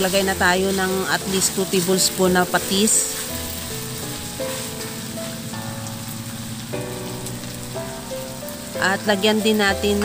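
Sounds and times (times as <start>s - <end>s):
spatula stirring in a wok: 0.0s - 8.0s
background music with held chords: 0.0s - 10.0s
chicken sizzling in a wok: 0.0s - 10.0s.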